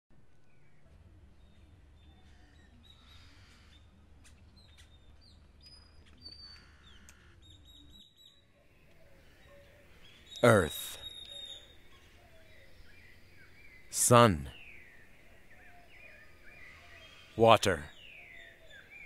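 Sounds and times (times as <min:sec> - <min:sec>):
faint bird chirps and whistles: 0:04.6 - 0:19.0.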